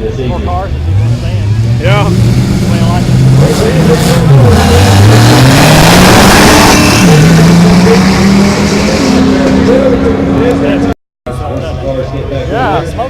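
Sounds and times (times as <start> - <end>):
drag racing car engine accelerating: 0.7 - 11.0.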